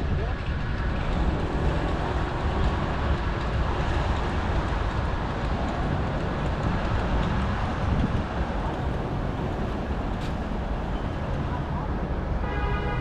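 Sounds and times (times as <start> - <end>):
wind on microphone: 0.0 - 10.2
tyre and street noise: 0.0 - 13.0.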